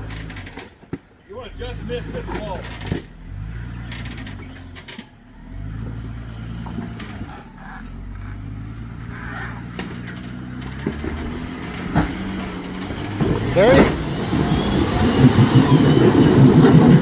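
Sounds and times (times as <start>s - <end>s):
off-road vehicle engine at low revs: 0.0s - 17.0s.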